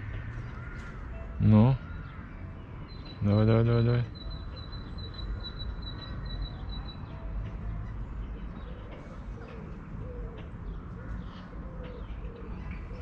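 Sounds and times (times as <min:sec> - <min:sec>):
bird high steady trill: 0:02.9 - 0:07.2.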